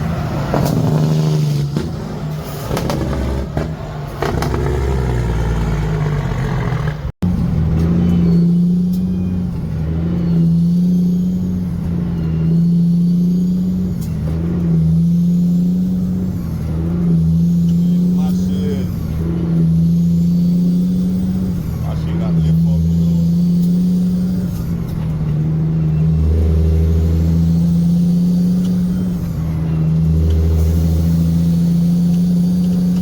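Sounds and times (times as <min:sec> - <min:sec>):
truck engine running: 0:00.0 - 0:08.4.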